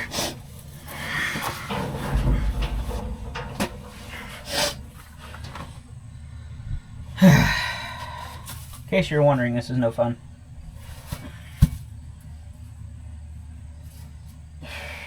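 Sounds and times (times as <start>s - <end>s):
metal machine parts clunking: 0.9s - 5.8s
person grunting: 7.2s - 8.0s.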